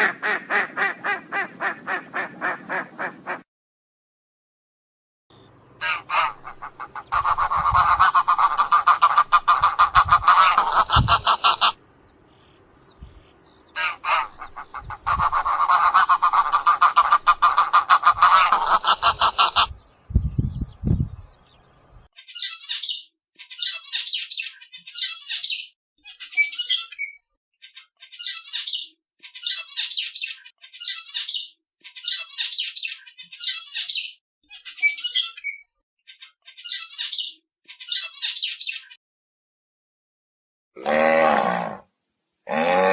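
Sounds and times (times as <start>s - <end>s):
geese honking: 5.8s - 11.8s, 13.8s - 19.7s, 26.4s - 27.1s, 34.8s - 35.6s
finches chirping: 22.2s - 39.0s.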